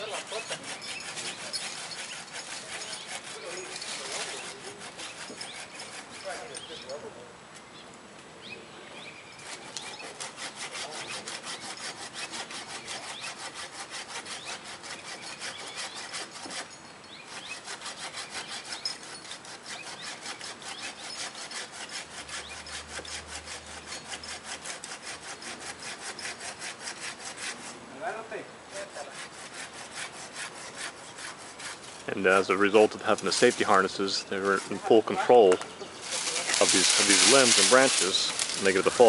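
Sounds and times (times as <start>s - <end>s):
handsaw cutting tree limb: 0.0s - 7.1s, 9.4s - 27.8s, 28.7s - 39.0s.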